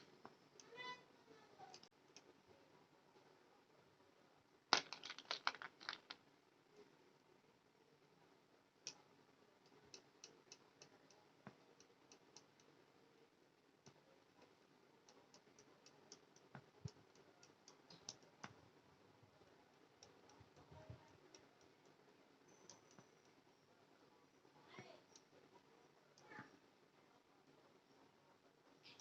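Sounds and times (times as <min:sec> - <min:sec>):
light clicks and ticks: 0:08.8 - 0:12.8, 0:13.8 - 0:18.6, 0:19.4 - 0:23.5.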